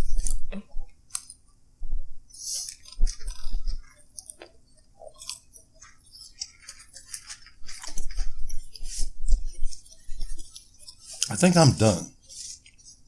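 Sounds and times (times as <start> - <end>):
chewing and mouth smacks: 2.3 - 11.3.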